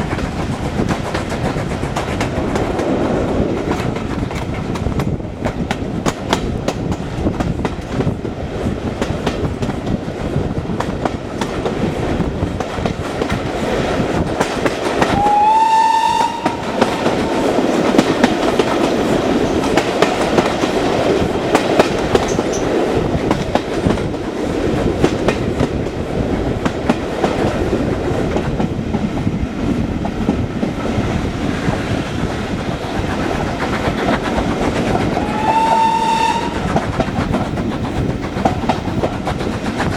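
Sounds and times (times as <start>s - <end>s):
train wheels rumbling over rail joints: 0.0s - 39.9s
locomotive whistle: 15.1s - 16.7s, 35.2s - 36.6s.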